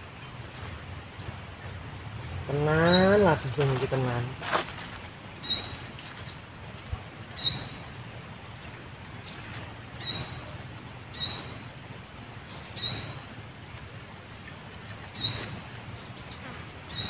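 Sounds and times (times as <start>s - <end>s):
small bird chirping: 5.4s - 6.4s, 7.4s - 7.8s, 12.5s - 13.2s, 14.4s - 17.0s.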